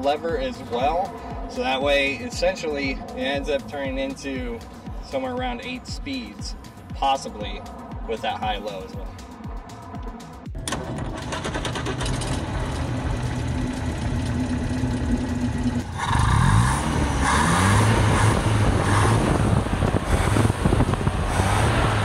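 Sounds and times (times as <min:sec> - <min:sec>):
car engine running and revving: 0:09.2 - 0:22.0.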